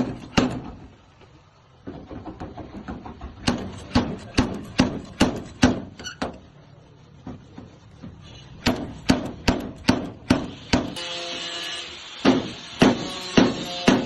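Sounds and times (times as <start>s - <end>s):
hammer on sheet metal: 3.4s - 5.9s, 8.6s - 11.5s, 12.2s - 14.0s.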